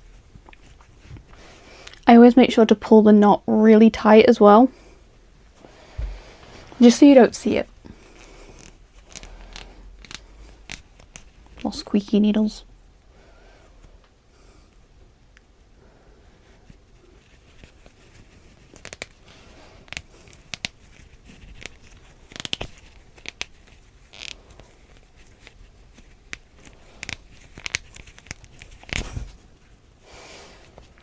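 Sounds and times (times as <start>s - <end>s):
yarn rustling: 4.5s - 14.0s, 15.9s - 31.0s
plastic needle squeaking through yarn: 19.8s - 29.0s.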